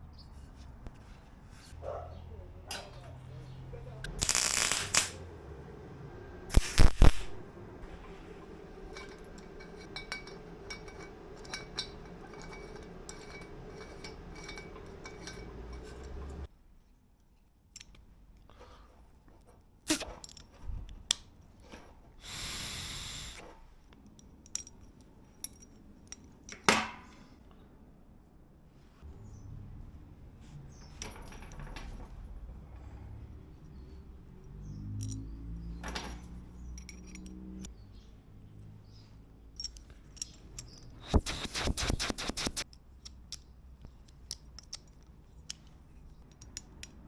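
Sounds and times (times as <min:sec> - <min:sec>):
metal parts and tools clinking: 0:04.0 - 0:05.2, 0:08.4 - 0:16.5, 0:33.8 - 0:37.7, 0:39.5 - 0:47.0
brief hiss: 0:06.5 - 0:07.4, 0:22.2 - 0:23.5.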